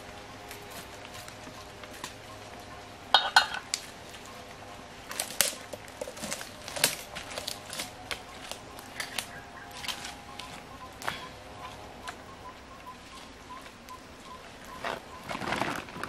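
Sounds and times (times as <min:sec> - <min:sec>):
hard objects clinking: 0:03.1 - 0:03.8.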